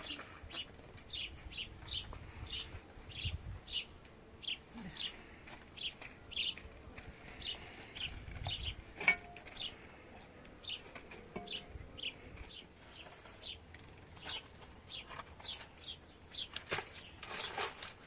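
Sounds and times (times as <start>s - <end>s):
small bird chirping: 0.0s - 5.2s, 5.8s - 6.6s.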